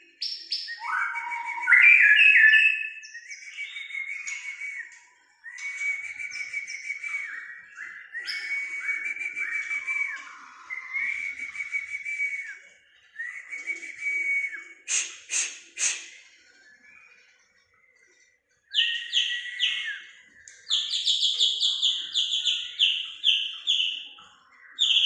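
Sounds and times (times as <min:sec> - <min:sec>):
high whistled birdsong: 0:00.0 - 0:25.0.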